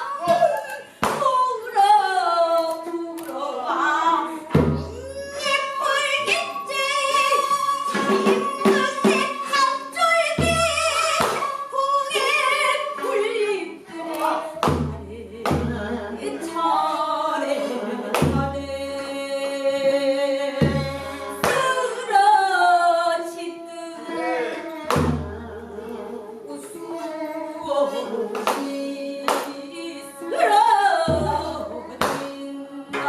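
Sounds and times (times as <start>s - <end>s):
barrel drum strikes: 14.6s - 15.9s.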